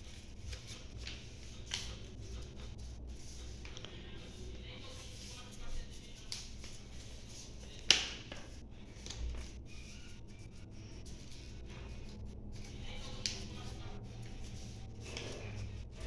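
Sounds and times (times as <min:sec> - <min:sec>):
paper rustling: 0:00.0 - 0:16.0
paper snapping: 0:07.8 - 0:08.4, 0:13.0 - 0:13.5.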